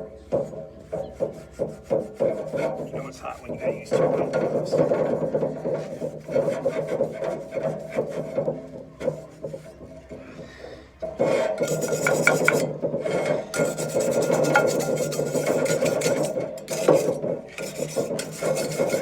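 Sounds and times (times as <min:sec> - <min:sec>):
scourer scrubbing cast iron pan: 0:01.1 - 0:10.0, 0:11.0 - 0:19.0.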